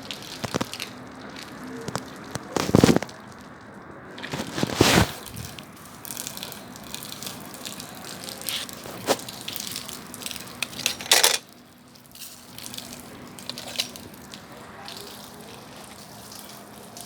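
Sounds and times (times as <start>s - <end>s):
bonfire flame hissing: 0.0s - 10.9s, 11.5s - 17.0s
burning wood crackling and popping: 0.0s - 17.0s.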